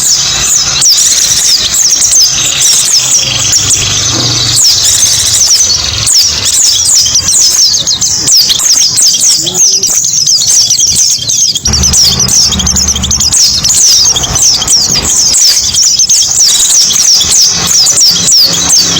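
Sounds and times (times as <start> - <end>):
white-eyes chirping: 0.0 - 18.9
low hum: 11.6 - 15.9.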